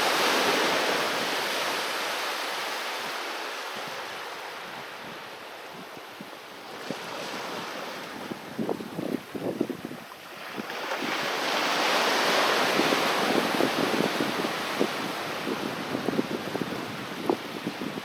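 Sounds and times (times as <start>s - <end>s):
sea waves washing onto beach: 0.0s - 18.0s.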